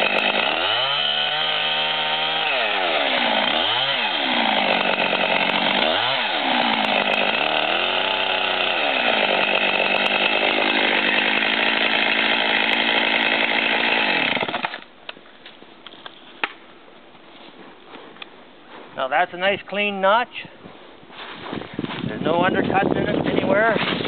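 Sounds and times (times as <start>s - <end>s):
chainsaw cutting wood at full throttle: 0.0s - 14.9s.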